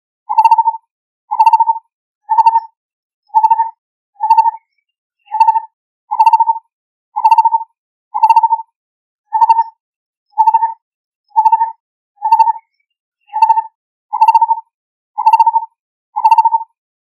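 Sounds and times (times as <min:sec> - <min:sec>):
barbet calling: 0:01.3 - 0:02.6, 0:03.4 - 0:04.5, 0:05.3 - 0:06.6, 0:08.2 - 0:08.6.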